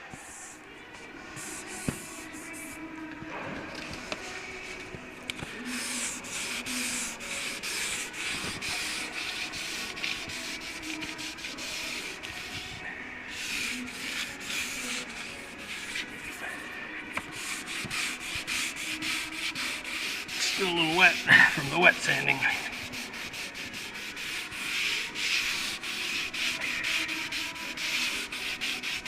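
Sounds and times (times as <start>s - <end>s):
sanding block rubbing: 5.5s - 16.4s, 17.2s - 29.0s.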